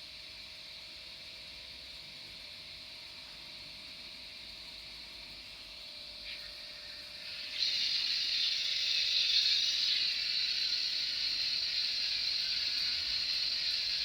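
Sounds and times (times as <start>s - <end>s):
steam hiss from small speaker: 6.2s - 14.0s.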